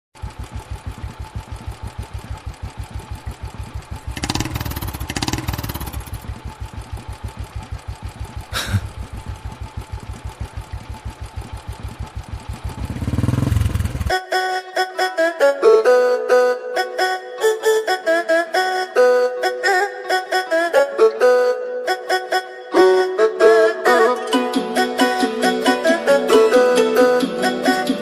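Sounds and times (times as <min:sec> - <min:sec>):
motorcycle engine running: 0:00.2 - 0:14.2
music: 0:14.1 - 0:28.0.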